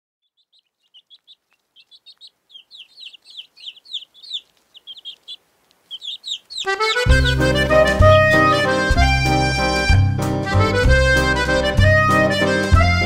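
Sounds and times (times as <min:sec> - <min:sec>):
small birds chirping: 0:00.2 - 0:09.0.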